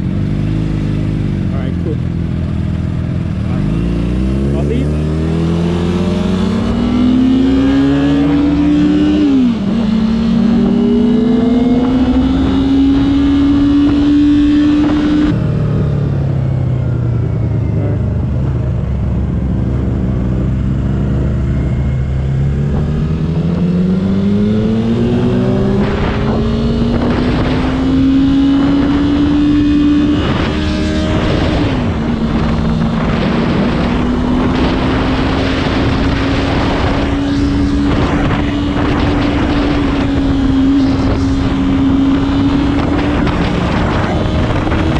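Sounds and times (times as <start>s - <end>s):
engine accelerating through gears: 0.0s - 44.9s
wind rush: 5.0s - 44.9s.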